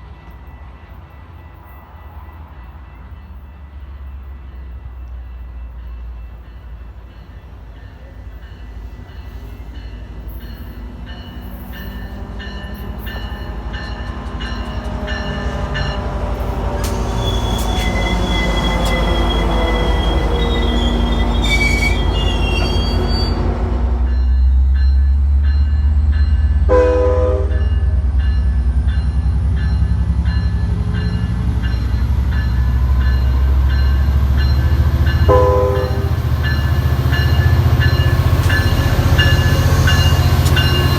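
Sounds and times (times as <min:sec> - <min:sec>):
train rumbling past: 0:00.0 - 0:40.9
wheels squealing on rails: 0:08.0 - 0:24.2, 0:29.7 - 0:40.9
train horn toots: 0:16.7 - 0:24.0, 0:26.7 - 0:27.8, 0:35.3 - 0:36.3.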